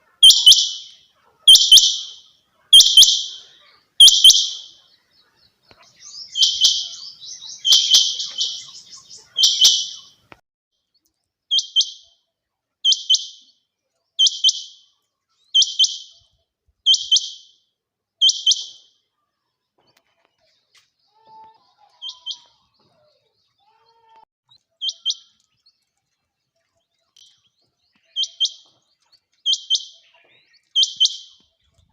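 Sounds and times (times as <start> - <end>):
quail calling: 0.0 - 4.9, 5.7 - 10.2, 16.9 - 17.4, 18.2 - 18.8, 21.2 - 22.6, 30.8 - 31.4.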